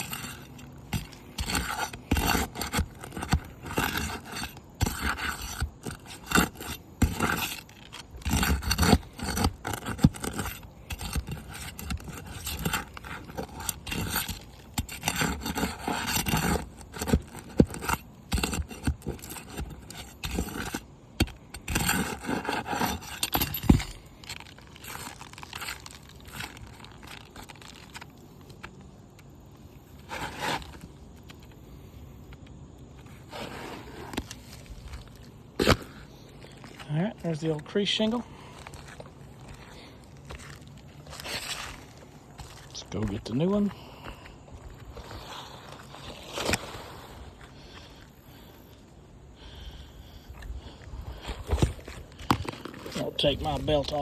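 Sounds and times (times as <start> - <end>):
scraping and prying roof shingles: 0.0 - 48.8, 49.4 - 54.0.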